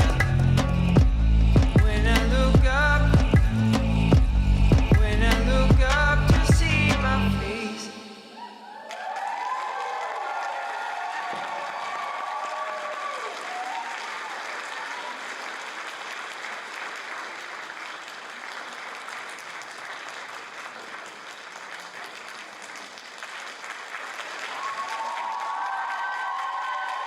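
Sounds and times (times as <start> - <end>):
stage music: 0.0 - 7.9
audience applauding: 8.6 - 27.0.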